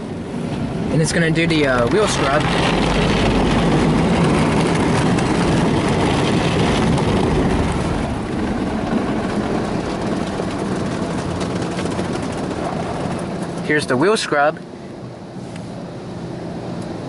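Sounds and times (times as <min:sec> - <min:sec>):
car wash machinery: 0:00.0 - 0:17.0
steady low hum: 0:00.0 - 0:17.0
car wash water spray: 0:00.4 - 0:13.8.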